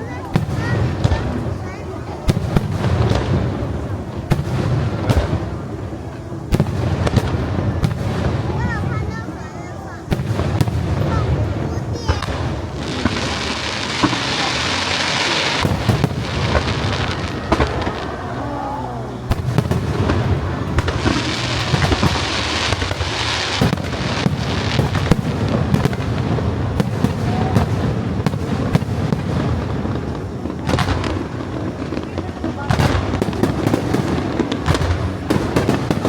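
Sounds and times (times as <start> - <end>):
firework crackling hiss: 0.0 - 36.0
firework shells bursting: 10.1 - 18.4, 19.1 - 36.0.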